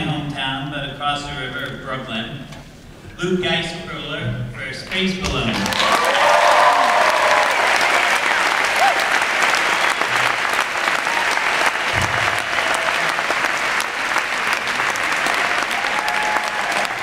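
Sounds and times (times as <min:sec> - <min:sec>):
audience applauding: 0:05.5 - 0:17.0
faint cheers: 0:05.6 - 0:13.5, 0:14.8 - 0:17.0.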